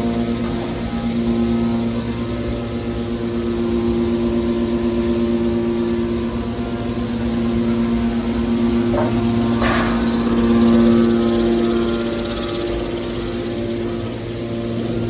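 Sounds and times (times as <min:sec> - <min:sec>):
baler compactor humming: 0:00.0 - 0:15.0.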